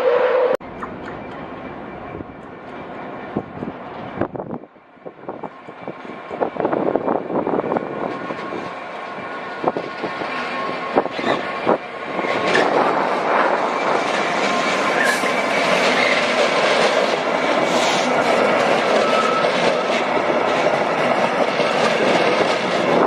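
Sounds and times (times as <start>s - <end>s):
train wheels clacking: 7.7s - 23.0s.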